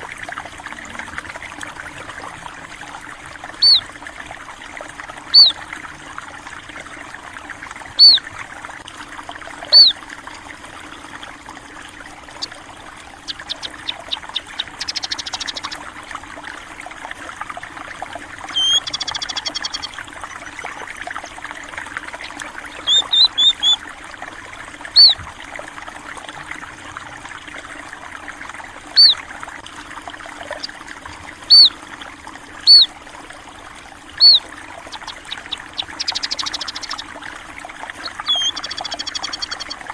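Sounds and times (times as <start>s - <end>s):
water trickling: 0.0s - 39.9s
bird ticking notes: 3.4s - 4.0s, 5.2s - 5.9s, 8.0s - 8.3s, 9.7s - 10.0s, 12.2s - 15.9s, 18.4s - 20.6s, 22.0s - 23.9s, 25.0s - 25.2s, 28.9s - 29.2s, 30.4s - 31.8s, 32.6s - 33.0s, 34.1s - 37.3s, 37.9s - 39.9s
small birds chirping: 3.5s - 3.9s, 5.3s - 5.6s, 8.0s - 8.3s, 9.7s - 10.0s, 12.2s - 12.6s, 13.2s - 15.8s, 18.4s - 19.9s, 22.2s - 23.8s, 25.0s - 25.2s, 29.0s - 29.2s, 30.4s - 30.8s, 31.4s - 31.8s, 32.6s - 32.9s, 34.2s - 37.2s, 37.9s - 39.9s
bird trill: 3.6s - 3.9s, 5.3s - 5.6s, 8.0s - 8.2s, 9.7s - 10.0s, 13.2s - 15.8s, 18.5s - 19.9s, 22.2s - 23.8s, 25.0s - 25.2s, 29.0s - 29.2s, 31.5s - 31.8s, 32.7s - 32.9s, 34.2s - 37.1s, 38.0s - 39.8s.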